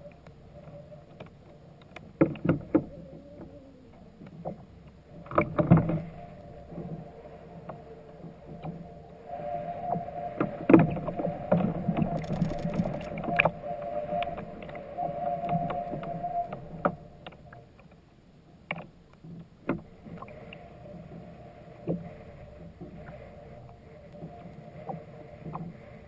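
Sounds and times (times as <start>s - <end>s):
water moving against hull: 0.6s - 17.9s.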